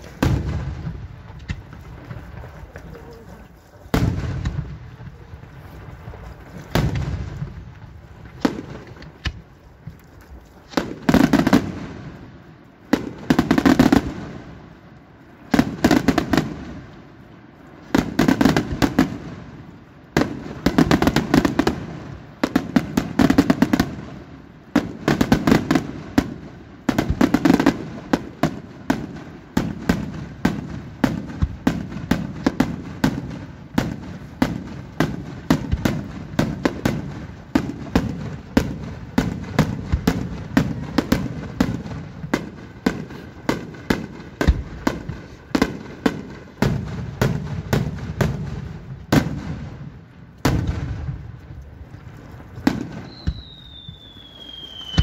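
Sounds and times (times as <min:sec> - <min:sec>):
fireworks bursting with loud bangs: 0:00.0 - 0:55.0.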